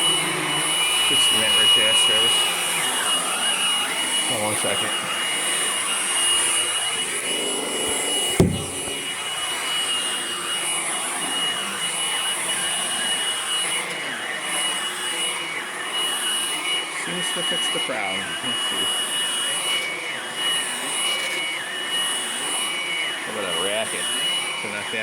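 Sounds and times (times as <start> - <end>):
vacuum cleaner running: 0.0 - 25.0
sharp thump: 8.4 - 9.2.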